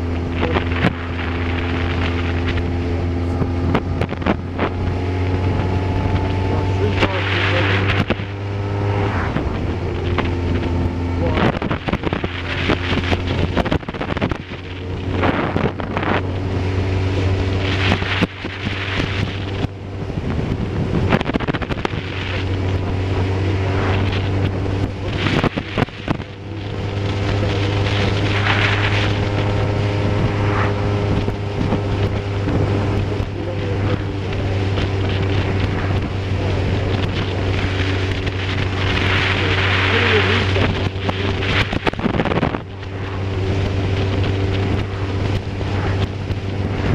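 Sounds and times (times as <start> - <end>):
vehicle engine drone: 0.0 - 46.9
wind buffeting microphone: 0.0 - 46.9.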